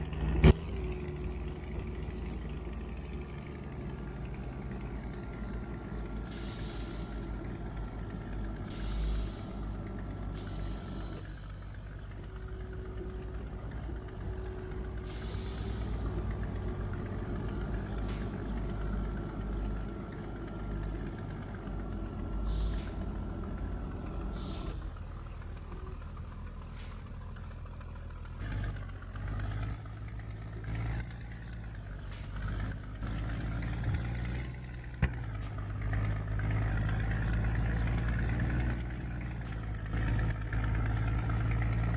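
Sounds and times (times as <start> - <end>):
truck diesel engine running: 0.0 - 41.9
air brake hisses: 6.2 - 7.4, 8.6 - 11.6, 15.0 - 16.1, 22.4 - 23.1, 24.3 - 25.0.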